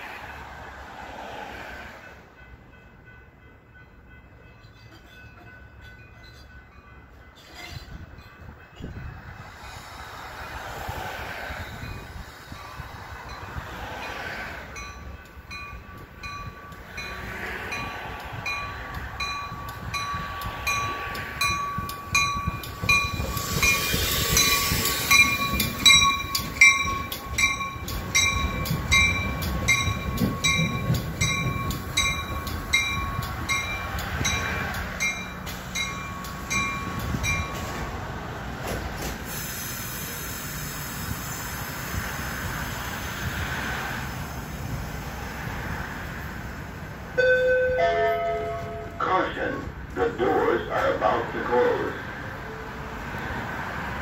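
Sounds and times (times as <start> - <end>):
train rumble and rail noise: 0.0 - 54.0
bell ringing: 18.6 - 37.6, 47.2 - 49.0.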